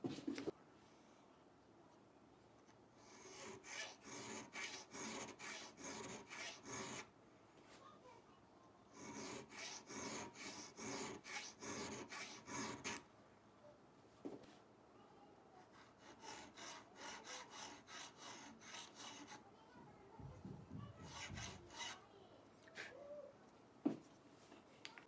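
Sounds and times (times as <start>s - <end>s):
file scraping steel: 3.1s - 7.1s, 9.0s - 13.0s, 15.7s - 19.5s, 20.9s - 22.1s.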